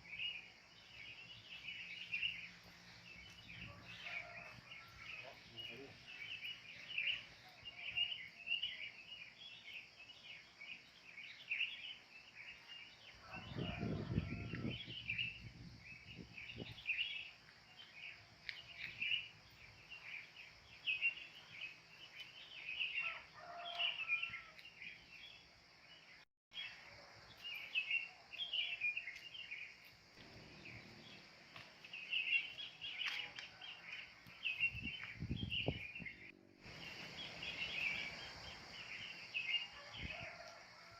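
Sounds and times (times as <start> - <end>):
birds chirping: 27.6 - 40.5.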